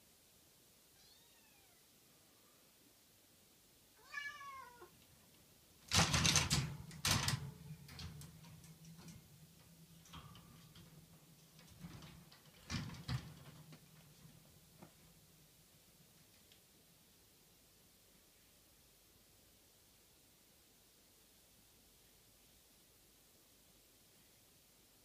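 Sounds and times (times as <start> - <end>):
kitten mewing: 4.0 - 4.9.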